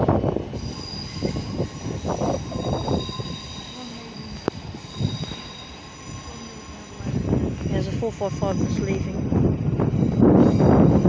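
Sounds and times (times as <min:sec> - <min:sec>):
train wheels rumbling on track: 0:00.0 - 0:11.0
high-pitched wheel squeal: 0:00.5 - 0:07.3.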